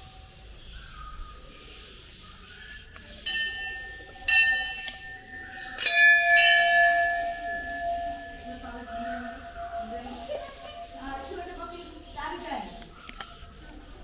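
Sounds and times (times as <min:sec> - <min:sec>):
metal bells ringing: 0:03.0 - 0:13.0
low-pitched bell ringing: 0:03.2 - 0:12.8.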